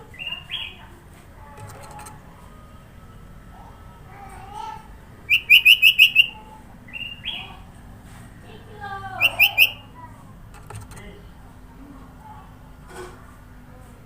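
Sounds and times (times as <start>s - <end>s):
bird singing sharp chirps: 5.3s - 7.5s, 9.2s - 9.8s.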